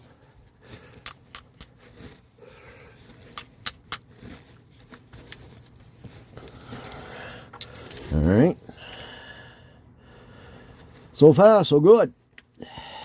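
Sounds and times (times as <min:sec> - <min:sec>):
hand tools clicking and clinking: 0:00.0 - 0:01.8, 0:03.0 - 0:04.1, 0:04.8 - 0:08.1
faint handling and shuffling: 0:00.0 - 0:08.8, 0:10.4 - 0:12.6.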